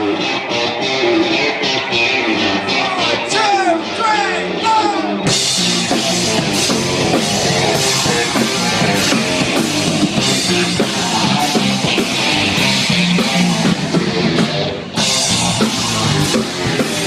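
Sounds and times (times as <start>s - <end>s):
rock band playing live: 0.0s - 17.0s.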